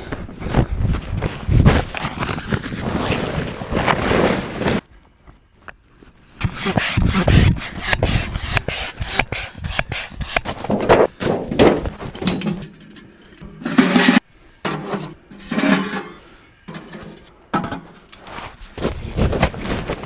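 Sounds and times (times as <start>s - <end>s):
rough scraping strokes: 6.4s - 11.1s.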